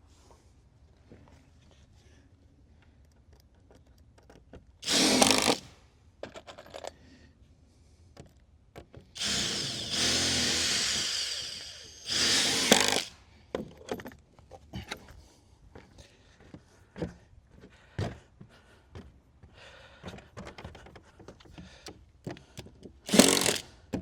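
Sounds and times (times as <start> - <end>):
power drill driving screws: 4.8 - 5.8, 9.2 - 13.2, 23.1 - 23.8
clicks and knocks of handling wood: 13.5 - 23.0.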